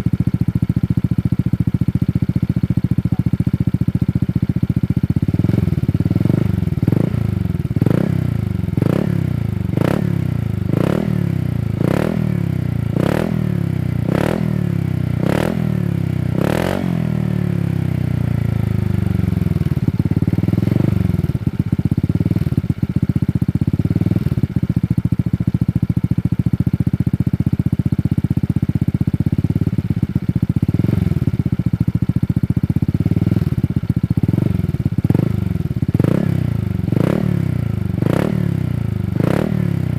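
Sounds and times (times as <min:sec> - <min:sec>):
scooter engine idling: 0:00.0 - 0:39.9
scooter engine revving: 0:05.2 - 0:22.8, 0:29.5 - 0:31.8, 0:34.2 - 0:39.9.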